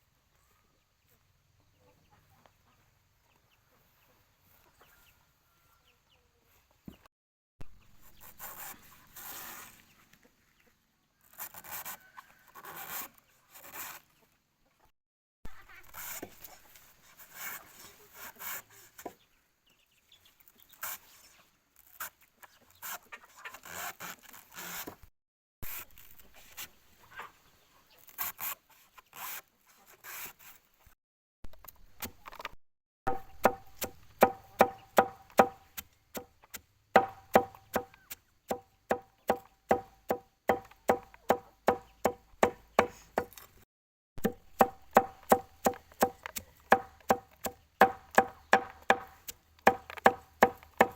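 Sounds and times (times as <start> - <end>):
chickens clucking: 0.4 - 7.1
chopping strikes on wood: 33.1 - 36.3, 37.0 - 43.4, 44.2 - 50.9.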